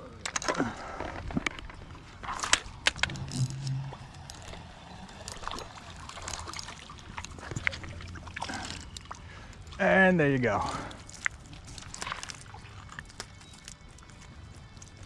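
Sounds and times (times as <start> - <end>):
river water running: 2.0 - 13.3
sharp clicks and knocks: 2.5 - 4.6.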